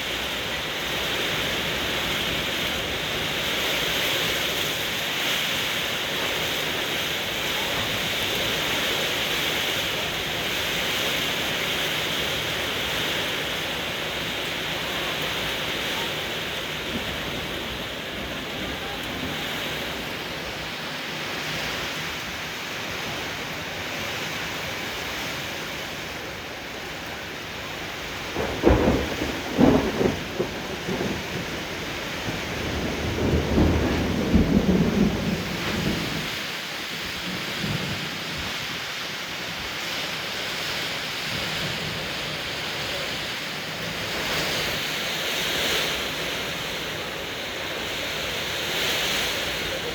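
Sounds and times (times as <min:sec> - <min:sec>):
heavy rain pouring: 0:00.0 - 0:49.9
low thunder rumble: 0:05.9 - 0:20.8, 0:27.1 - 0:38.7
thunder cracks: 0:28.1 - 0:36.5.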